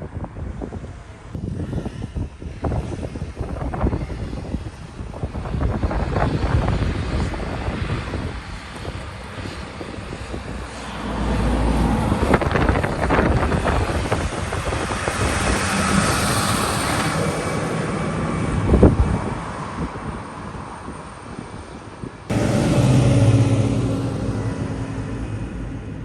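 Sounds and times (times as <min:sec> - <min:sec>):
tractor engine passing by: 0:22.3 - 0:26.0.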